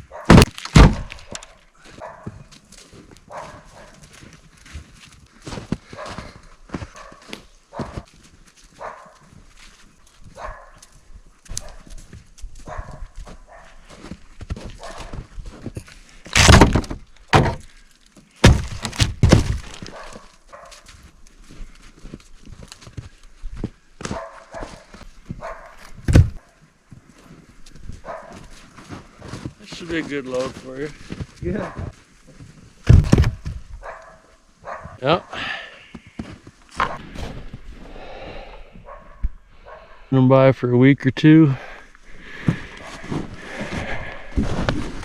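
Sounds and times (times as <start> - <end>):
firewood knocking and thudding: 0.2 - 1.6, 14.1 - 20.1, 25.3 - 26.4, 31.1 - 34.0, 35.9 - 37.6.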